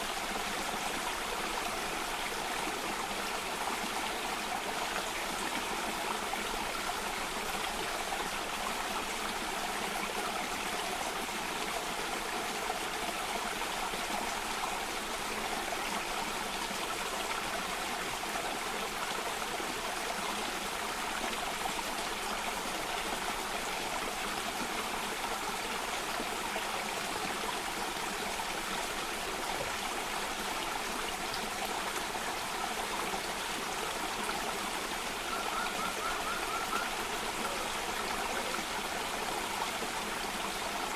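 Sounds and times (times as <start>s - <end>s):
water cascading over rocks: 0.0s - 40.9s.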